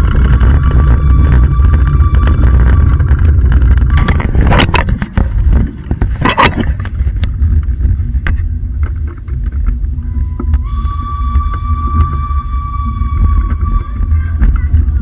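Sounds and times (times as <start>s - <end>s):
train rumbling: 0.0s - 15.0s
clanks and knocks: 0.1s - 10.7s.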